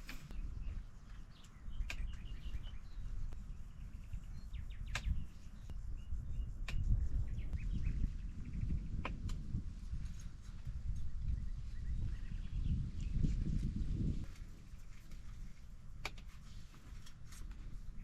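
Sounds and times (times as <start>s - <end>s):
bird chirps: 0.1s - 9.0s.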